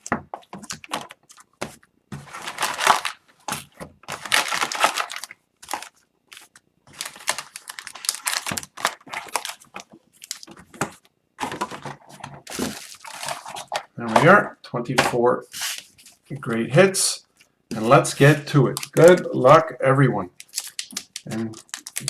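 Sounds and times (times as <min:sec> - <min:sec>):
plastic packaging crinkling and tearing: 0:02.2 - 0:10.8, 0:11.4 - 0:14.4, 0:17.7 - 0:19.6, 0:20.3 - 0:22.0.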